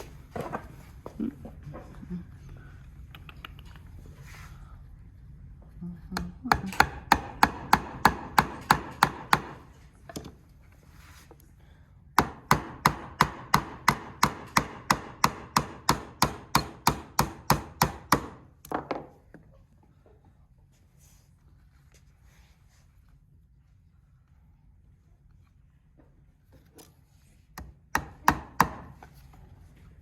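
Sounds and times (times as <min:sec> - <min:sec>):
hammer driving nails into wood: 0:06.5 - 0:09.7, 0:12.2 - 0:18.4, 0:27.6 - 0:29.1.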